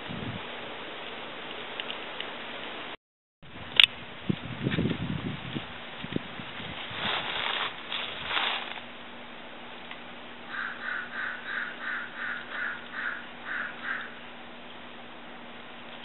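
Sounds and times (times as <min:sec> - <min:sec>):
faint steady hum: 0:00.0 - 0:16.0
bird short calls: 0:10.5 - 0:14.2.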